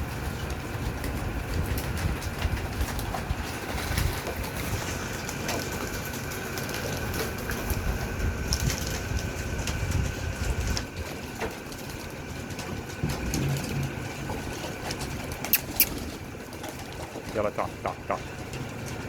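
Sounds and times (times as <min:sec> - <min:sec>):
wing flutters: 0:13.0 - 0:18.2
pigeon cooing: 0:13.0 - 0:18.5.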